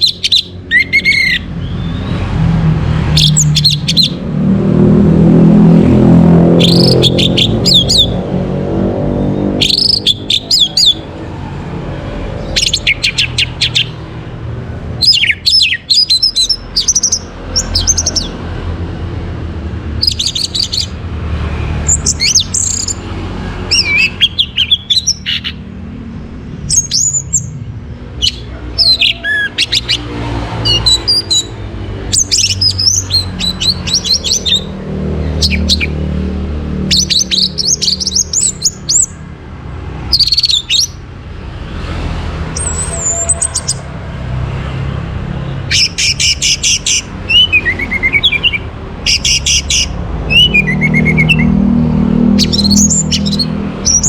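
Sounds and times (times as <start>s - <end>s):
thrush singing whistled phrases: 0.0s - 2.3s, 3.1s - 4.2s, 6.5s - 8.2s, 9.5s - 11.1s, 12.4s - 14.0s, 15.0s - 18.4s, 20.0s - 21.0s, 23.7s - 25.7s, 28.2s - 34.7s, 35.4s - 36.0s, 36.9s - 39.2s, 40.1s - 41.0s, 45.7s - 51.6s, 52.3s - 54.0s.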